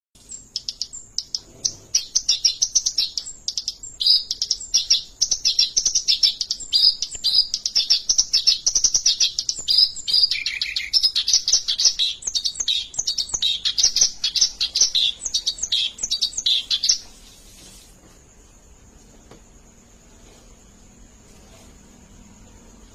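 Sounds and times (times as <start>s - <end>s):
reed warbler singing: 0.2s - 17.8s.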